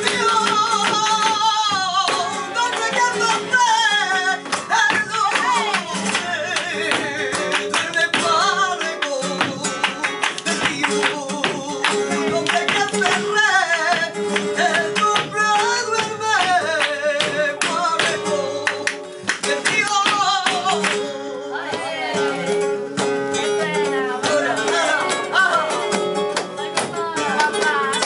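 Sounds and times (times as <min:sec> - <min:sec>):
flamenco guitar: 0:00.0 - 0:28.0.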